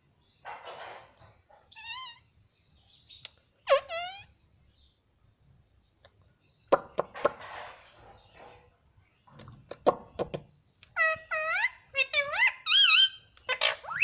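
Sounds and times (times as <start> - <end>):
sharp knocks and clicks: 6.8 - 7.9.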